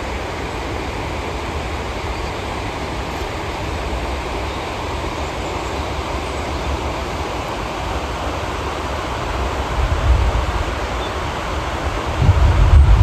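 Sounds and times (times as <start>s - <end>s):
steady rain: 0.0s - 13.0s
wind rumble on microphone: 9.2s - 13.0s.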